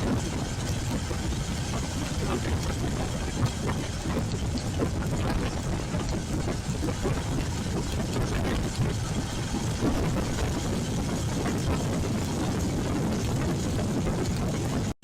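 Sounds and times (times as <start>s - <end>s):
motorcycle engine running: 0.0s - 14.9s
wind and road noise: 0.0s - 15.0s.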